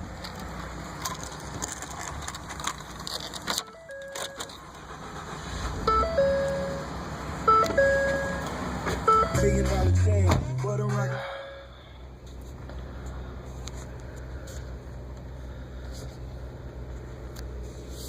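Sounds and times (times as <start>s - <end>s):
car engine cranking and starting: 0.0s - 11.2s
two-note warning chime: 5.9s - 6.9s, 7.5s - 8.5s.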